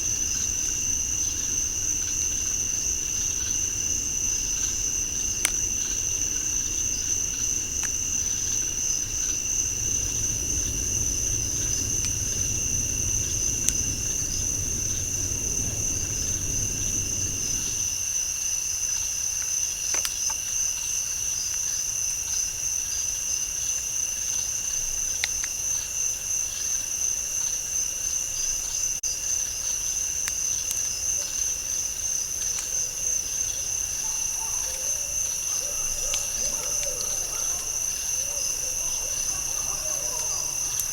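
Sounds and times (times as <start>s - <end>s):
low rumble: 0.0s - 17.9s
crickets trilling: 0.0s - 40.9s
faint clicks: 34.0s - 40.9s.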